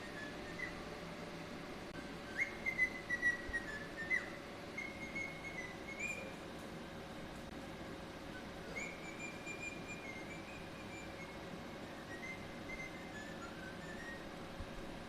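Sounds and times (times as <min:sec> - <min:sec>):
parrot whistling: 0:00.0 - 0:00.8, 0:02.0 - 0:06.4, 0:08.3 - 0:14.3
faint steady hum: 0:00.0 - 0:15.0.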